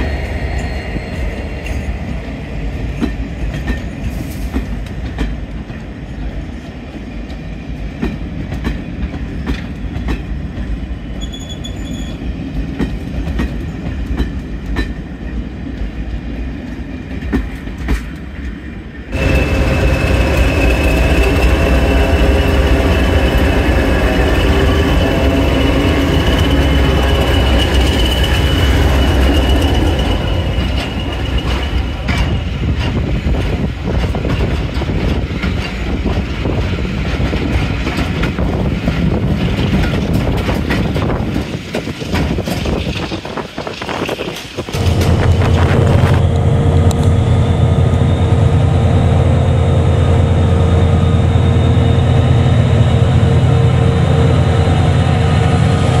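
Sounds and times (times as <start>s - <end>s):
diesel locomotives running: 0.0s - 56.0s
train wheels clicking over rail joints: 1.4s - 15.9s, 16.6s - 18.6s, 19.2s - 47.2s.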